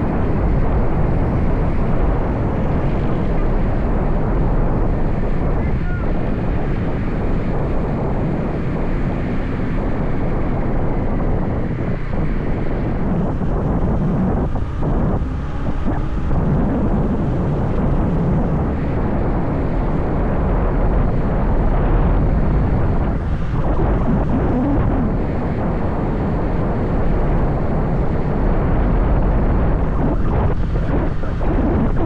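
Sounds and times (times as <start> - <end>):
motorbike engine and road noise: 0.0 - 32.0
wind buffeting microphone: 0.0 - 32.0.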